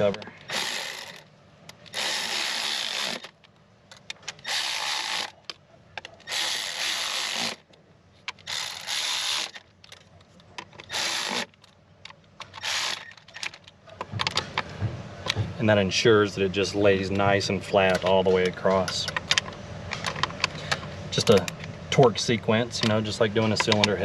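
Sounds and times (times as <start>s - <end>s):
ratchet wrench running bolts: 0.0s - 1.2s, 1.8s - 3.4s, 4.3s - 5.4s, 6.2s - 7.6s, 8.3s - 9.6s, 10.8s - 11.6s, 12.4s - 13.6s.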